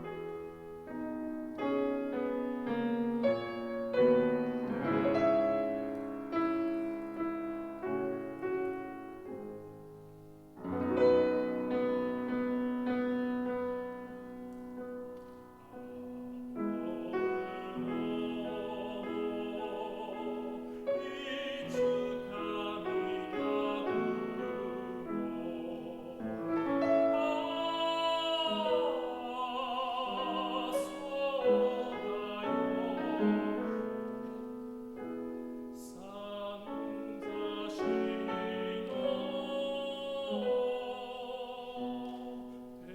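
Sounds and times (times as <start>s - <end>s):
classical piano: 0.0s - 42.9s
tenor voice singing: 15.6s - 34.1s, 35.8s - 42.9s.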